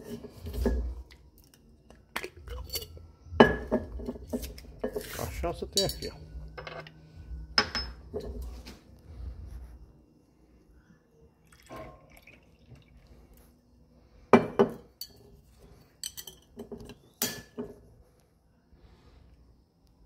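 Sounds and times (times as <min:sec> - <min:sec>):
glass bottles clinking: 0:02.2 - 0:07.0, 0:07.6 - 0:08.5.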